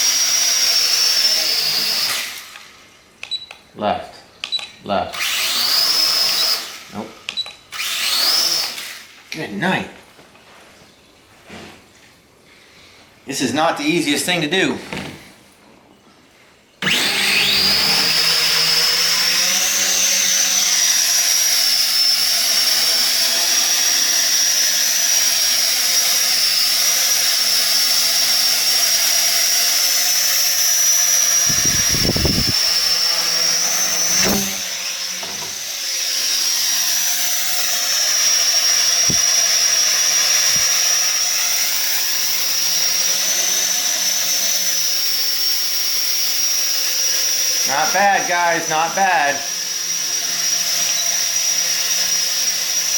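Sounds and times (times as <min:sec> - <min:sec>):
drone motors whining: 0:29.0 - 0:52.9.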